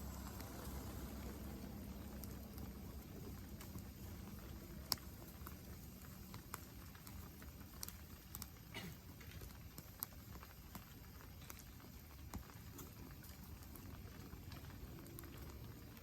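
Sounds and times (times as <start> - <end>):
low steady rumble: 0.0 - 7.4
campfire crackling and popping: 0.0 - 16.0.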